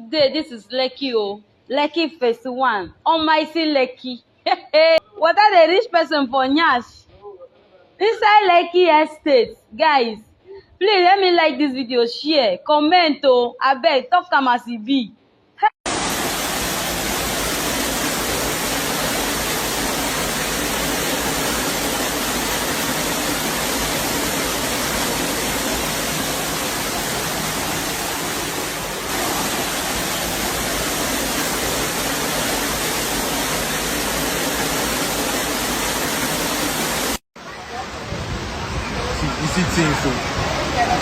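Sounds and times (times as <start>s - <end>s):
loud rush of water: 15.9s - 41.0s.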